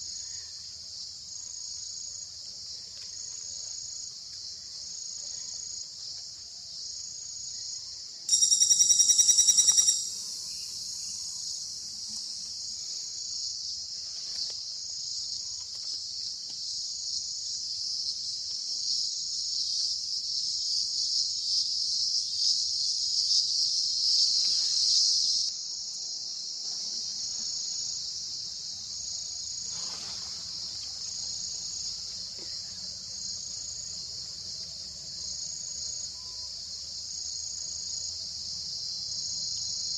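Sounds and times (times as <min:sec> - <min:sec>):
insects trilling chorus: 0:00.0 - 0:39.9
rapid pulsed insect call: 0:00.0 - 0:39.9.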